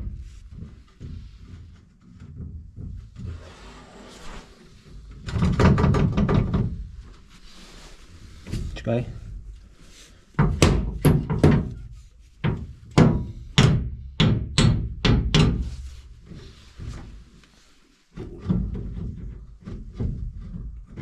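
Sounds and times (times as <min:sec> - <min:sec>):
scraping: 0:00.0 - 0:10.4.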